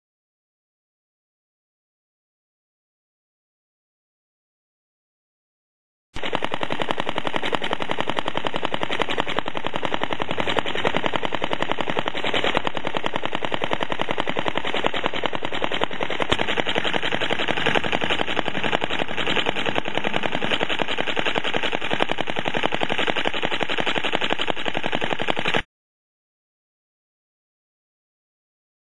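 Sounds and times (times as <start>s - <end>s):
model engine popping exhaust: 6.2s - 25.7s.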